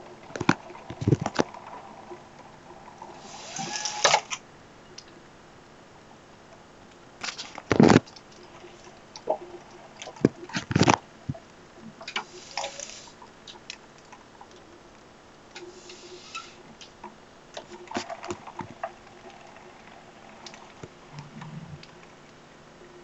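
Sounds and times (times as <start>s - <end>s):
rain hissing: 0.0s - 10.5s, 11.1s - 13.6s, 14.3s - 23.0s.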